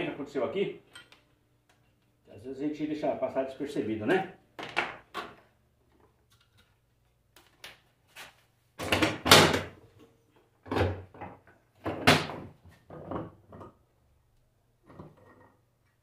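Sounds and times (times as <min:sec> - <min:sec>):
objects knocking and scraping on workbench: 0:10.6 - 0:13.8, 0:14.8 - 0:15.6.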